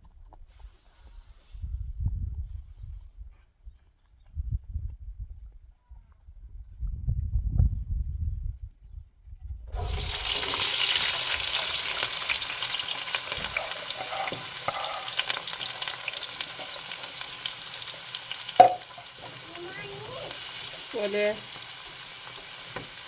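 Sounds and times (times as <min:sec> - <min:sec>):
food sizzling in a pan: 0:09.8 - 0:23.0.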